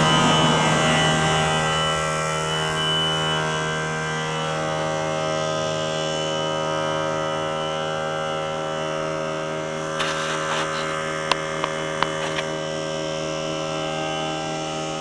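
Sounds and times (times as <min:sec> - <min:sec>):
air compressor humming: 0:08.4 - 0:13.5.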